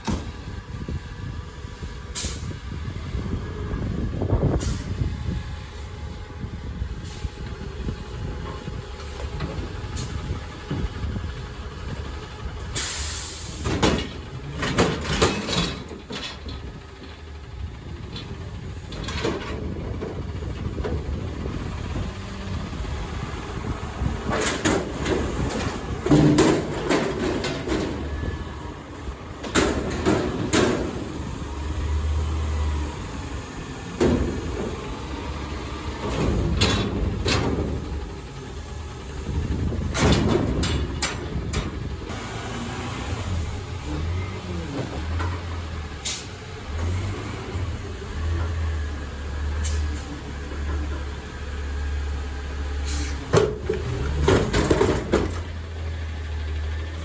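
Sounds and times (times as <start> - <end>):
garbage truck engine running: 0.0 - 57.0
metal clanks and bangs: 12.8 - 17.3, 18.1 - 22.0, 24.0 - 31.4, 33.8 - 38.4, 39.3 - 42.1, 52.9 - 55.6.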